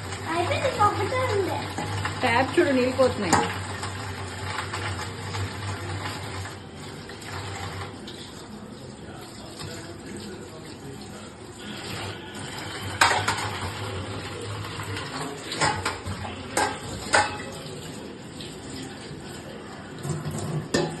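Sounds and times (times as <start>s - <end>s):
tap water running: 0.0s - 21.0s
dishes clattering: 1.6s - 6.4s, 11.9s - 17.9s, 19.9s - 21.0s
sharp clanks of dishes: 13.0s - 13.6s, 15.5s - 17.6s, 20.0s - 21.0s.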